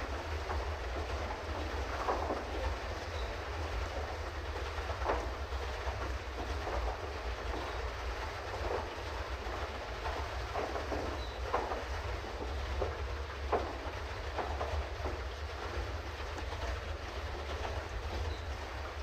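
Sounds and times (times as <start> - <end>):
paddle mechanism knocks and clatter: 0.0 - 19.0
pedal boat low rumble: 0.0 - 19.0.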